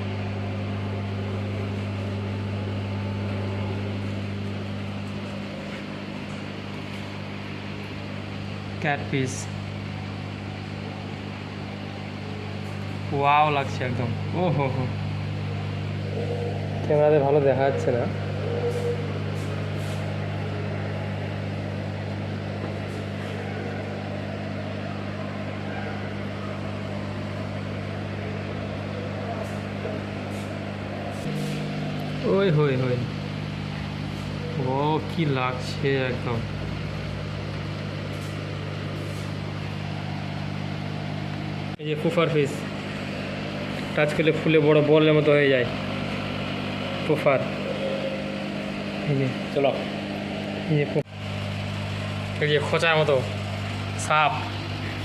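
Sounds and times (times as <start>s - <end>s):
low electrical hum: 0.0s - 55.0s.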